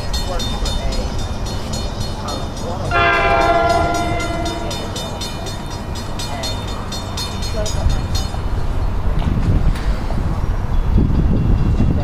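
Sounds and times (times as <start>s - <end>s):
train low rumble: 0.0s - 12.0s
train horn chord: 2.9s - 5.7s.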